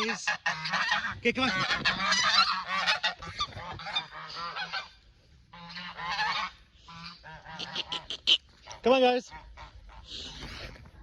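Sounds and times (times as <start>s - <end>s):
geese honking: 0.0s - 10.4s.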